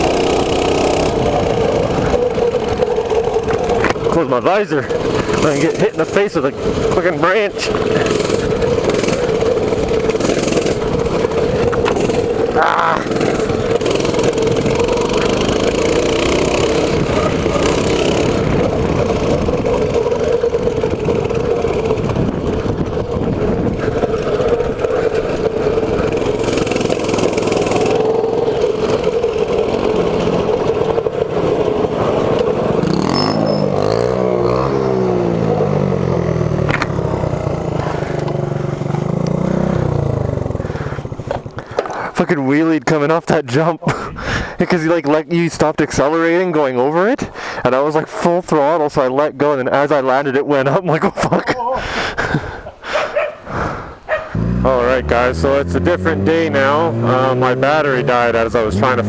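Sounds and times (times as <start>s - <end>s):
bike clattering: 0.0s - 34.1s, 36.6s - 39.4s
mini bike engine revving: 0.0s - 42.6s, 50.9s - 59.0s.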